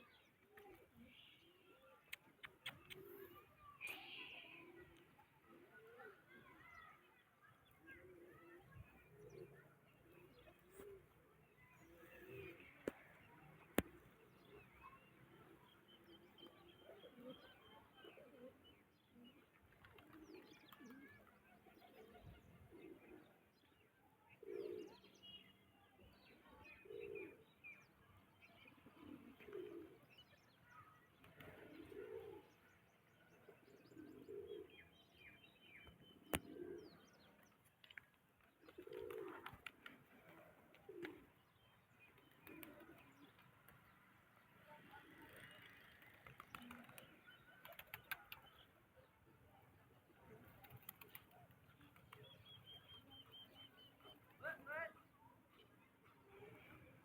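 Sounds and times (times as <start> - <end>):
small birds chirping: 0.0 - 57.0
dove cooing: 24.3 - 25.0, 28.9 - 30.1, 31.3 - 32.6, 33.4 - 34.9, 36.2 - 37.0, 38.6 - 41.4.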